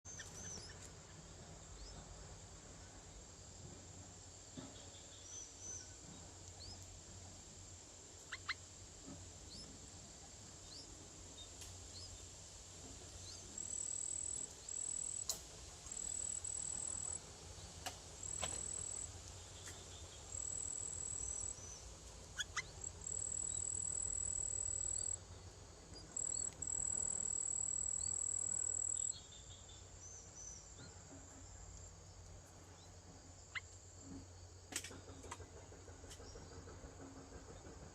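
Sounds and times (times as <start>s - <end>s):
faint bird chirps: 0.1s - 2.1s, 8.2s - 8.7s, 13.2s - 31.6s, 32.6s - 33.8s
insects trilling: 2.8s - 37.9s.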